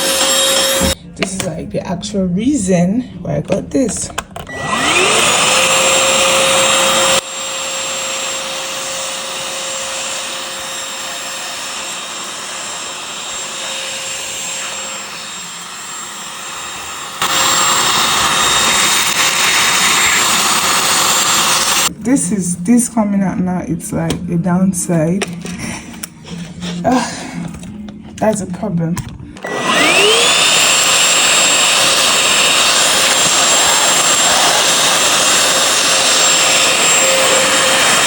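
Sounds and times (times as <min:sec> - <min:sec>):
handheld vacuum cleaner running: 0:00.0 - 0:01.0, 0:04.4 - 0:21.9, 0:29.4 - 0:38.0.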